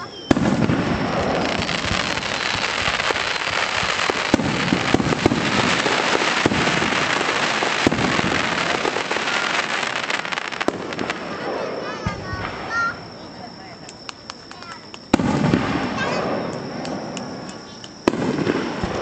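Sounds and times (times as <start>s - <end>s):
fireworks loud bangs: 0.0s - 13.8s, 14.4s - 19.0s
fireworks crackling: 0.0s - 19.0s
fireworks sharp pops: 0.0s - 19.0s.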